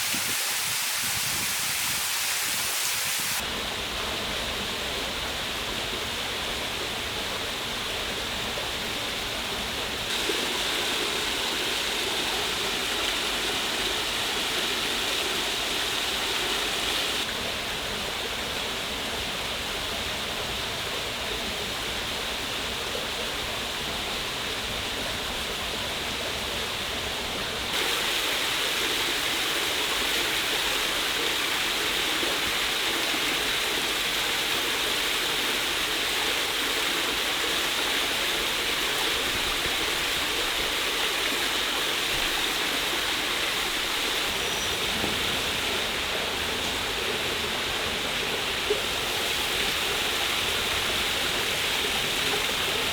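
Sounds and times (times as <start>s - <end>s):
waterfall rushing: 0.0s - 6.9s, 9.9s - 17.5s, 26.4s - 52.9s.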